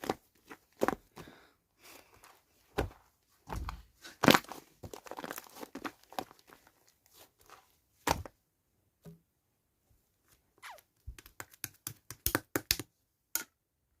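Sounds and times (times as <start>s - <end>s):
slime clicking and tapping: 11.1s - 12.9s.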